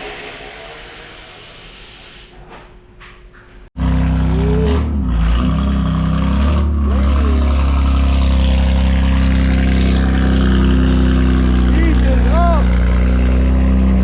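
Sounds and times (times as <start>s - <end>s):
car engine idling loudly: 3.8s - 14.0s.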